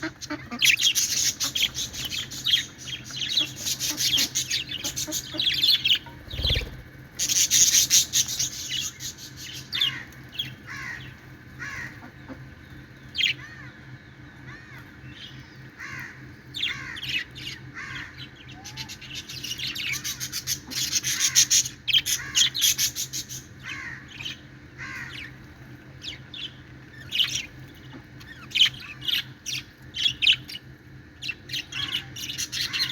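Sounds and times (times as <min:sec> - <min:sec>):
budgerigars chirping: 0:00.0 - 0:12.1
harsh bird chatter: 0:00.0 - 0:13.7, 0:14.6 - 0:32.9.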